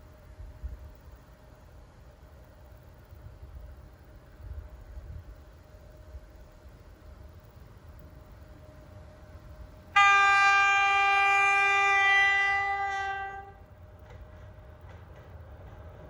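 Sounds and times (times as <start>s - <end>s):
train horn blast: 9.9s - 13.8s.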